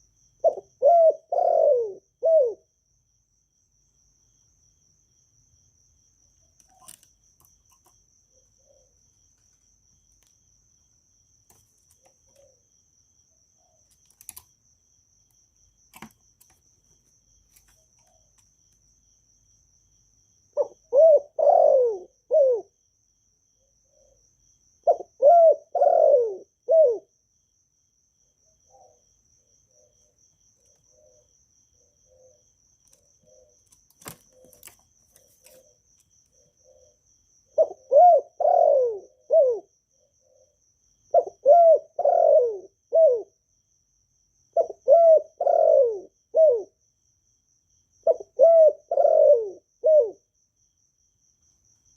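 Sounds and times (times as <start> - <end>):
dove cooing: 0.0 - 2.7, 7.8 - 9.0, 11.9 - 12.7, 20.6 - 22.8, 24.8 - 27.1, 30.7 - 35.8, 36.4 - 43.4, 44.5 - 46.8, 48.0 - 50.3.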